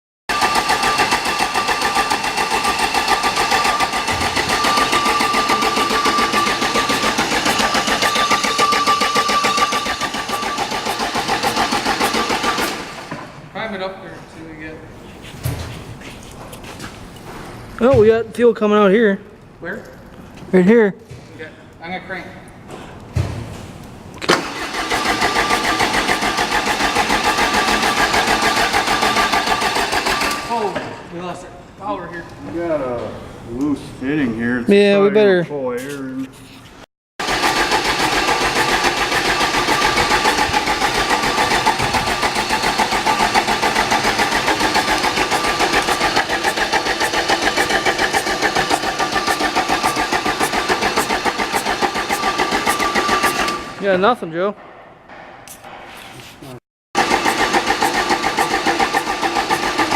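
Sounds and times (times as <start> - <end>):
diesel engine cranking by starter: 0.3 - 13.4, 24.2 - 30.8, 37.2 - 53.8, 57.0 - 59.9.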